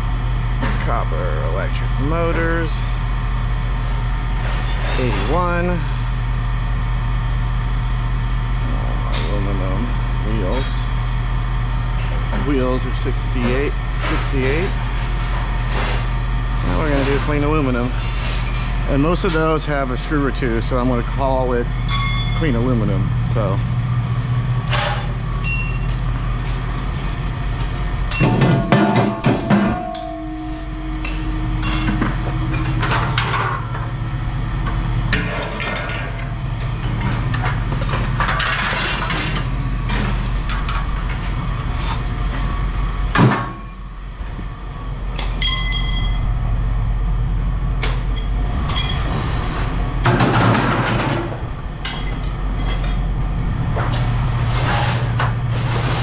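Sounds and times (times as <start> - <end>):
low engine hum: 0.0 - 56.0
aluminum pieces clanking: 28.1 - 33.8
loud metal knocks: 28.1 - 40.7, 47.8 - 53.1.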